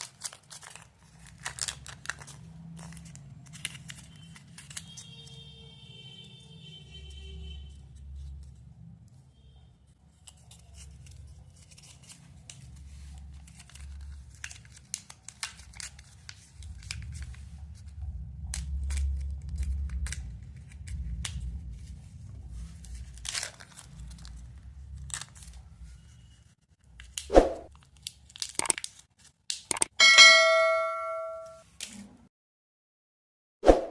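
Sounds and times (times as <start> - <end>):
wrapper crinkling: 0.0 - 5.0, 22.9 - 25.6.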